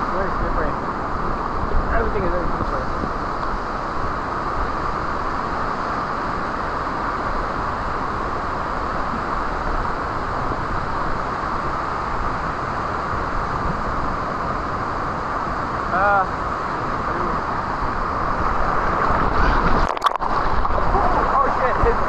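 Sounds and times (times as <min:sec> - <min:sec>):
waterfall roaring: 0:19.8 - 0:21.4.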